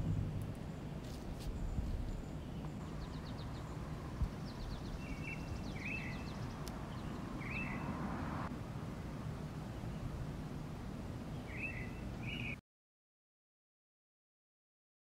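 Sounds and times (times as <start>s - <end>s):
small bird chirping trills: 0.0s - 7.9s
steady low rumble: 0.0s - 11.4s.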